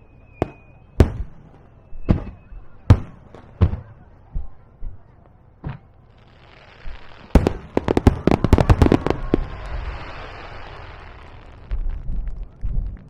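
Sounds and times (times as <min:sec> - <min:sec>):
fireworks bangs: 0:00.3 - 0:13.0
fireworks hiss: 0:06.2 - 0:11.8.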